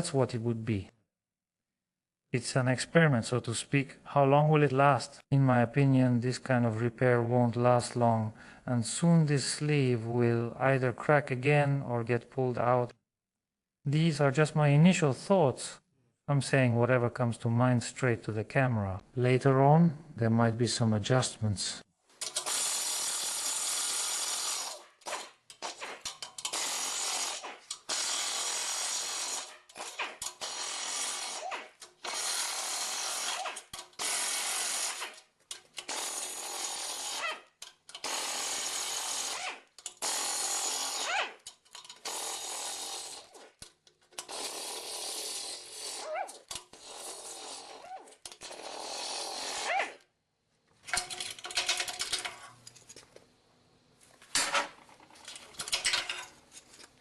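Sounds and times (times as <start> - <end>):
power tool bursts: 22.2 - 37.3, 37.9 - 43.4.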